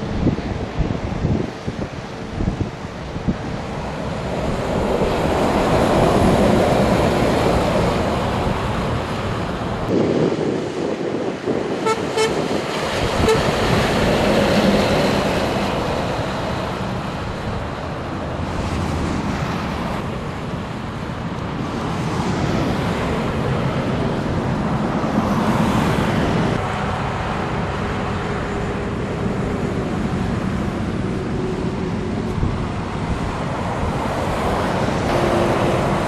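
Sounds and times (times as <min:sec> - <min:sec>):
road traffic: 0:00.0 - 0:36.0
vehicle horn toots: 0:11.8 - 0:12.4, 0:13.2 - 0:13.5, 0:35.1 - 0:35.9.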